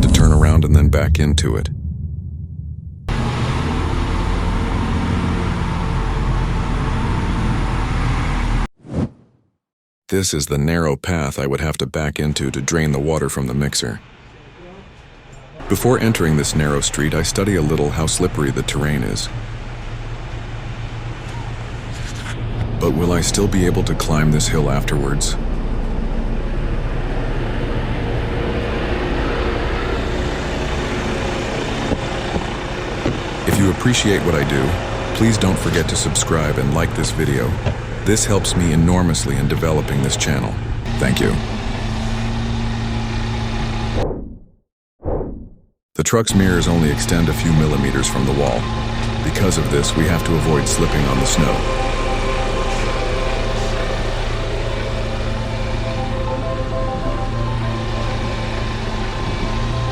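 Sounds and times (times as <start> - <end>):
diesel truck engine running: 0.0 - 8.7, 12.3 - 44.0, 46.3 - 59.9
faint steady hum: 46.4 - 59.9.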